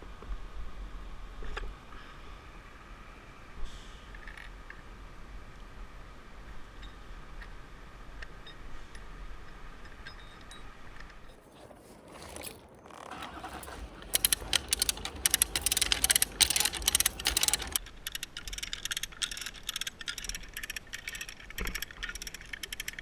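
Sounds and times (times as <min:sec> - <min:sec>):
metallic clicking and rattling: 0:11.8 - 0:23.0.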